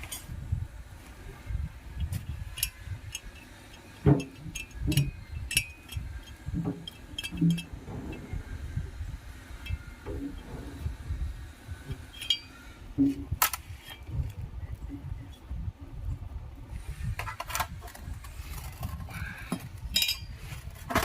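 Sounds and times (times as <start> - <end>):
metal tools clinking: 12.1 - 12.6, 19.9 - 20.4.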